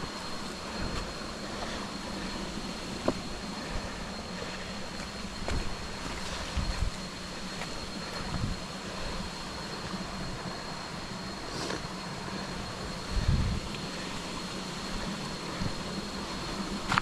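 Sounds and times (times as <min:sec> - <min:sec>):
steady rushing background: 0:00.0 - 0:17.0
footsteps on jungle floor: 0:02.9 - 0:03.4, 0:04.6 - 0:08.6.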